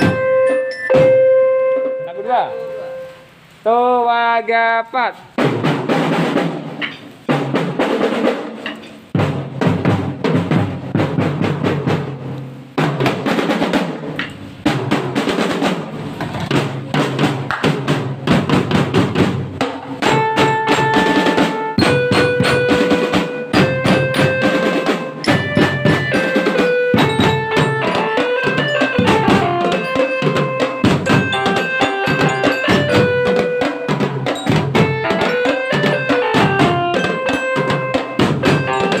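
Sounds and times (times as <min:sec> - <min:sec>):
melody instruments holding notes: 0:00.0 - 0:03.4, 0:20.0 - 0:39.0
snare and bass drums cadence: 0:05.3 - 0:39.0.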